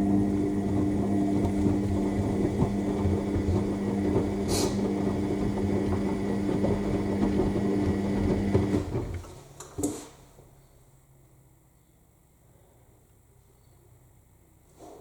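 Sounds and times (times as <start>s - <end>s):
washing machine motor hum: 0.0s - 9.4s.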